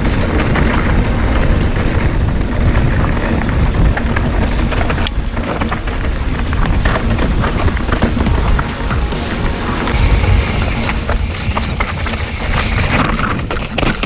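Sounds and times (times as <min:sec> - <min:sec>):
mountain bike rattling on trail: 0:00.0 - 0:08.2, 0:11.2 - 0:14.0
wind buffeting microphone: 0:00.0 - 0:09.2.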